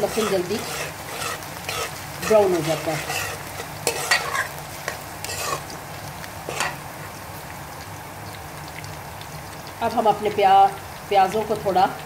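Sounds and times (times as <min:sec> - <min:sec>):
metal spoon scraping pan: 0:00.0 - 0:05.8, 0:06.5 - 0:06.8
onions sizzling in oil: 0:00.0 - 0:12.0.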